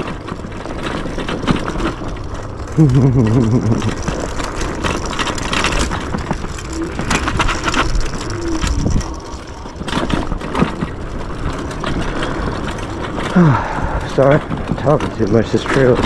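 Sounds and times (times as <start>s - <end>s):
scooter knocking and rattling: 0.0s - 16.0s
tyres crunching over dirt: 0.0s - 16.0s.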